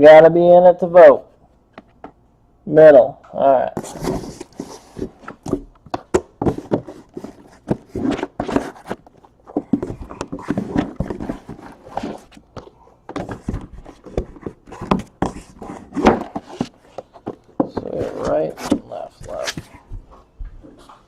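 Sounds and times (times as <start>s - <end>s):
card boxes tapping and rustling: 3.8s - 19.8s.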